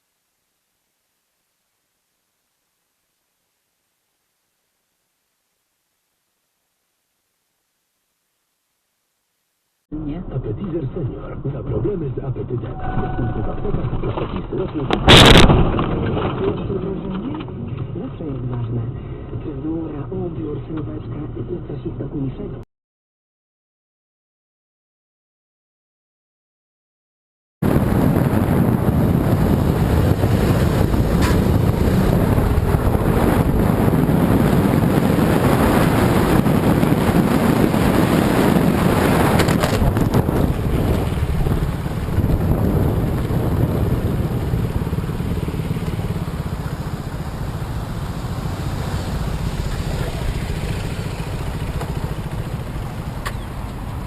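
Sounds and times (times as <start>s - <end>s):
vehicle engine and road noise: 10.0s - 22.6s, 27.6s - 54.0s.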